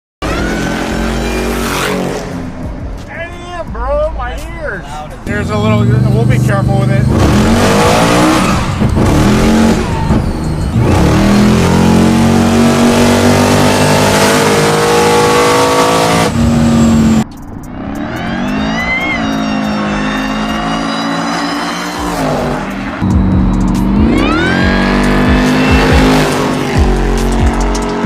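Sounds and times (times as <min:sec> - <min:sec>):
car engine revving hard: 0:05.4 - 0:17.2, 0:17.8 - 0:28.0.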